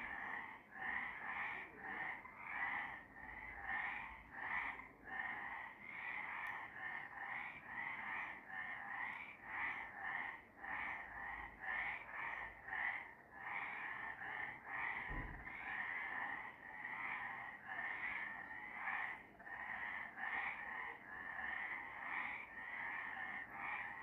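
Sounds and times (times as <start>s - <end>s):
frogs calling in chorus: 0.0s - 24.0s
low thud: 15.1s - 15.5s.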